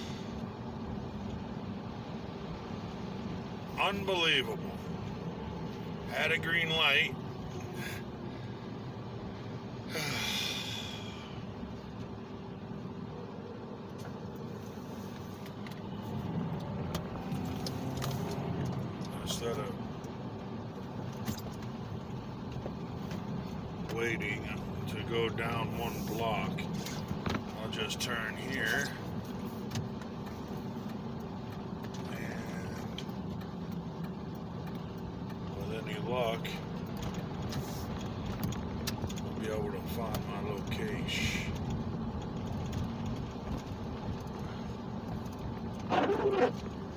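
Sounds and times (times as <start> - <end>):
engine and road rumble: 0.0 - 46.9
faint light ticks: 28.8 - 46.8.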